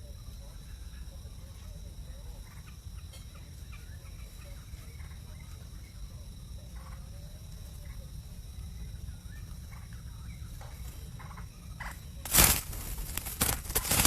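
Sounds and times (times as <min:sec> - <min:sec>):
birds chirping and clucking: 0:09.7 - 0:14.0.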